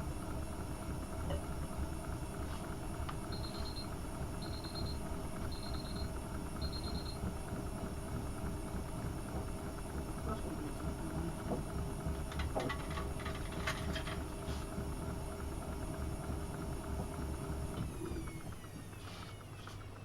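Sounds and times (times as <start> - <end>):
washing machine running: 0.0 - 20.0
rapid high beeps: 3.3 - 7.2.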